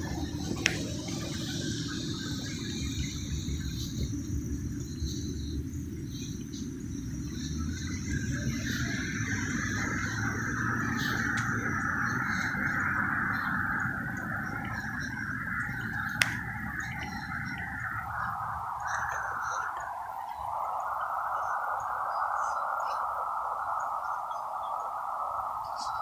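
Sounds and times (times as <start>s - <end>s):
high hiss: 0.0s - 26.0s
low city rumble: 0.0s - 26.0s
thin high chirping: 0.0s - 26.0s.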